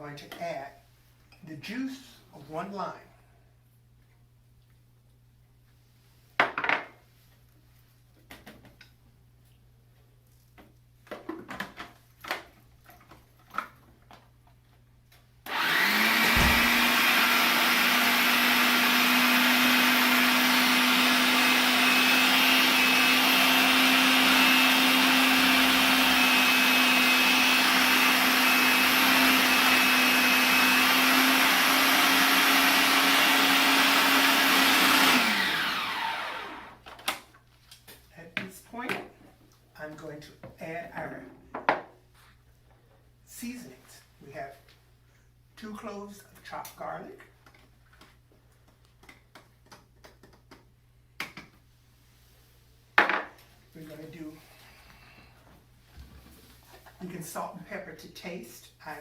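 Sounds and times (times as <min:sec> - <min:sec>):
electric blender running: 0:15.5 - 0:36.8.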